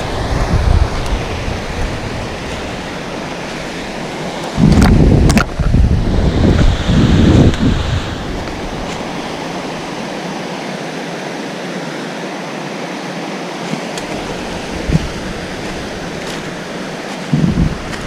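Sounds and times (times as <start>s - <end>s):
wind buffeting microphone: 0.0s - 9.9s, 14.0s - 18.0s
waterfall rushing: 0.0s - 18.0s.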